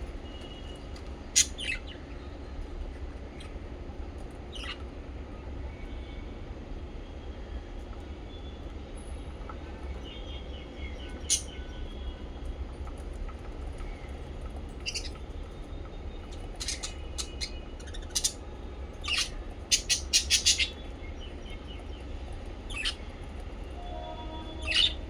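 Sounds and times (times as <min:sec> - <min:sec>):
parrots chirping: 0:01.3 - 0:02.0, 0:04.5 - 0:04.8, 0:10.8 - 0:11.7, 0:14.8 - 0:15.2, 0:16.2 - 0:18.4, 0:19.0 - 0:21.8, 0:22.6 - 0:23.1, 0:24.6 - 0:25.0.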